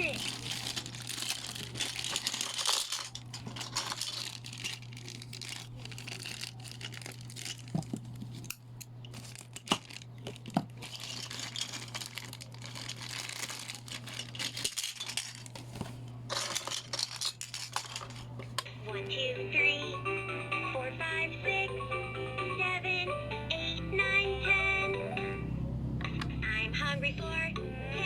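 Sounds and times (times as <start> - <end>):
small plastic pieces knocking: 0.0 - 8.5, 9.1 - 18.3
packaging crinkling: 0.0 - 18.4.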